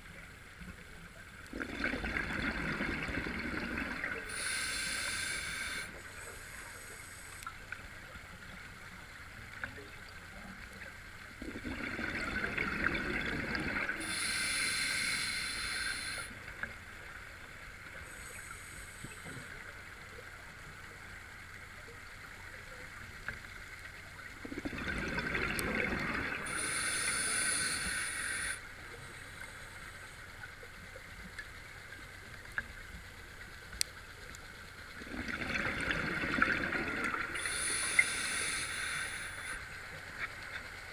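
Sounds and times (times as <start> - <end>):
exhaled bubbles rumbling: 1.4 - 4.4, 11.4 - 14.0, 24.4 - 26.5, 34.9 - 37.7
regulator hissing: 4.3 - 7.4, 14.0 - 16.3, 26.5 - 28.6, 37.4 - 39.6
faint clicks: 5.0 - 11.2, 29.0 - 35.0.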